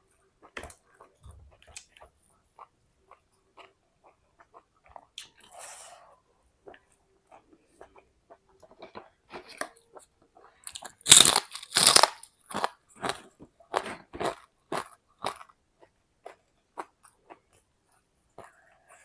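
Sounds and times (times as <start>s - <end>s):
crisp food crunching: 10.7s - 15.5s.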